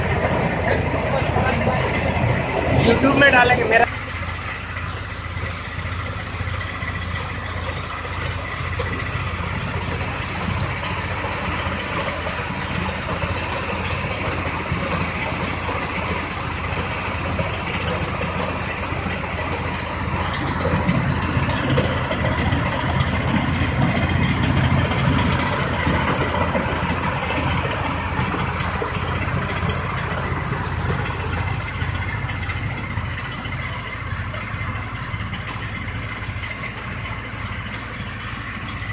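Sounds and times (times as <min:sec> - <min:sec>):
faint machinery whine: 0:00.0 - 0:38.9
tractor engine rumble: 0:00.0 - 0:38.9.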